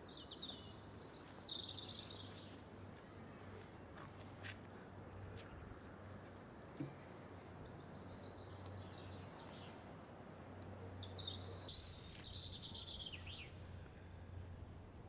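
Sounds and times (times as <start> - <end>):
faint outdoor background noise: 0.0 - 15.0
steady low hum: 11.6 - 15.0.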